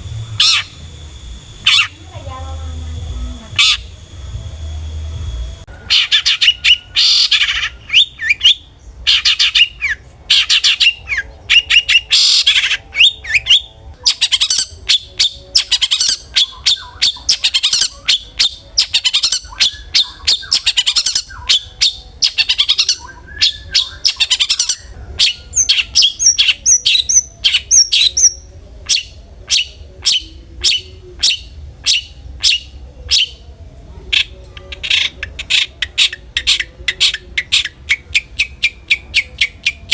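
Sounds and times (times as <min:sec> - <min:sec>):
high whistled bird notes: 0:00.0 - 0:02.0, 0:03.0 - 0:04.4, 0:05.0 - 0:33.4
bird chattering: 0:00.3 - 0:04.1, 0:05.8 - 0:33.4, 0:34.1 - 0:39.9.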